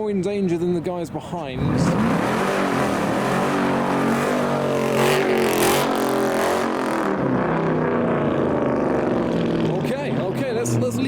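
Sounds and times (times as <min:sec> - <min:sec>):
car engine revving hard: 0:01.6 - 0:09.8.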